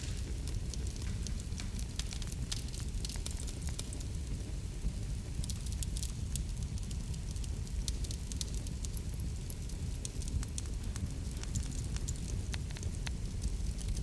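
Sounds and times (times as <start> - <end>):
fire crackling and popping: 0.0 - 14.0
low rumble of flames: 0.0 - 14.0.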